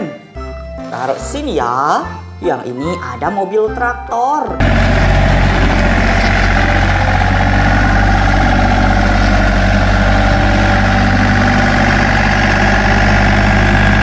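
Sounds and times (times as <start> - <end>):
tractor engine idling: 4.6 - 14.0.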